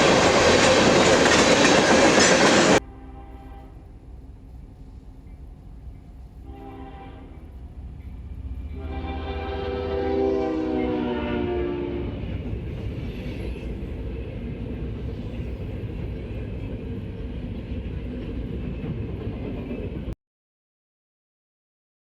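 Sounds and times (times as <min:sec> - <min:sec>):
train rumbling past: 0:00.0 - 0:20.2
train horn chord: 0:02.7 - 0:04.0, 0:06.4 - 0:07.6, 0:08.7 - 0:12.4.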